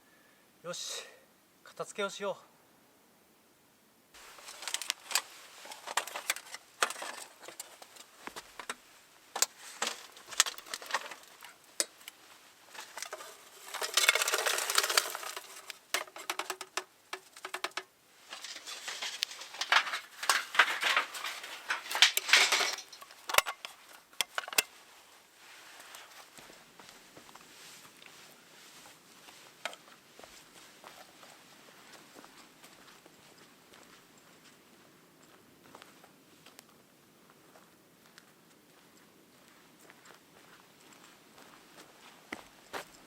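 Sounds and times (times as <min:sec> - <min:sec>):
pots and utensils clattering: 0:04.4 - 0:07.8, 0:09.4 - 0:12.1, 0:12.8 - 0:24.7.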